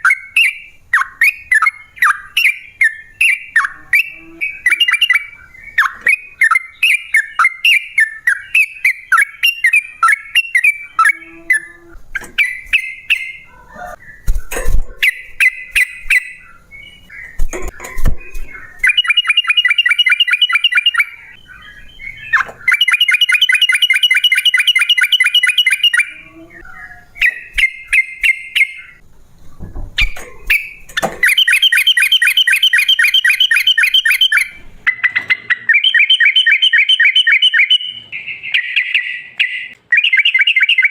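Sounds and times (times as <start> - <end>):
bulbul singing chattering notes: 15.0 - 29.0, 30.5 - 40.9
bird rolling trills: 30.0 - 40.9.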